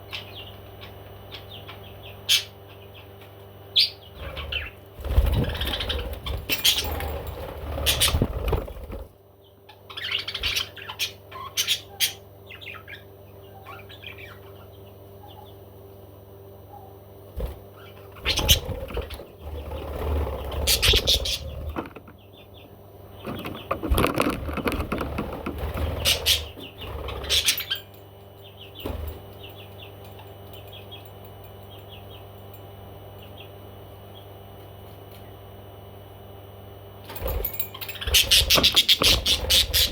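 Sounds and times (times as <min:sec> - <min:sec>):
wings flapping: 0:04.2 - 0:09.1, 0:18.2 - 0:22.0, 0:23.3 - 0:27.6, 0:37.1 - 0:39.9
parrot chirping: 0:38.0 - 0:39.9.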